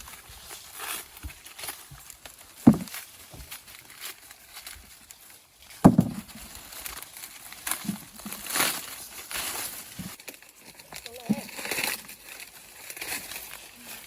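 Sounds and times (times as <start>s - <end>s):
dry corn leaves rustling: 0.0s - 14.0s
dull thud: 2.6s - 3.5s, 5.8s - 6.4s.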